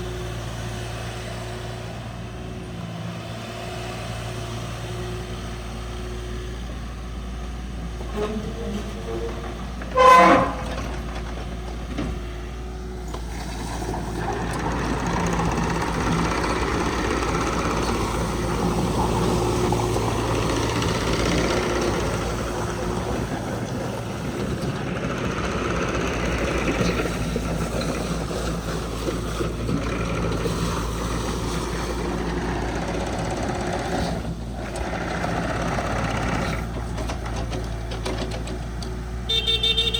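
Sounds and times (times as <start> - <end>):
diesel engine running: 0.0 - 39.9
horn toot: 9.9 - 11.0, 39.3 - 39.9.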